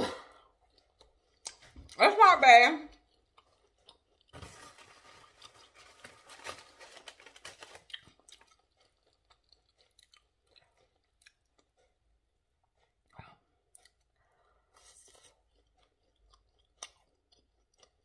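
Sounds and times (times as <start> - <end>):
person chewing crunchy food: 0.1 - 2.0, 2.9 - 18.0.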